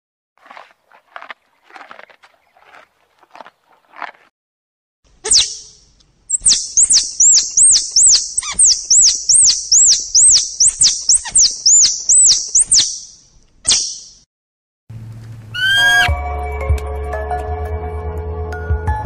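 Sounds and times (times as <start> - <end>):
squirrel squeaky calls: 5.2 - 14.2, 15.6 - 16.1.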